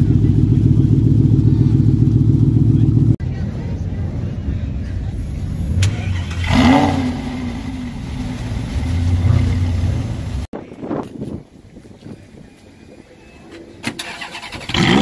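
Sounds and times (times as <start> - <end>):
car engine starting and revving: 5.5 - 10.5, 13.8 - 15.0.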